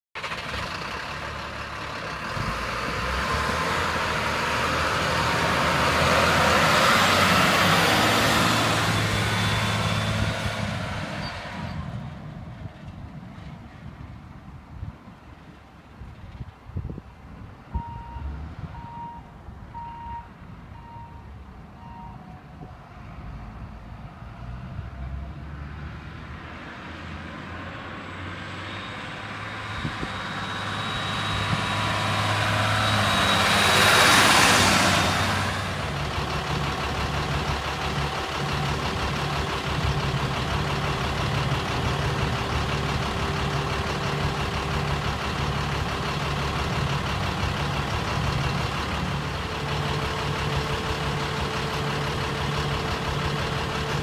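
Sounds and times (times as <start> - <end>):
diesel truck engine: 0.2 - 54.0
backup alarm beeping: 17.8 - 22.4.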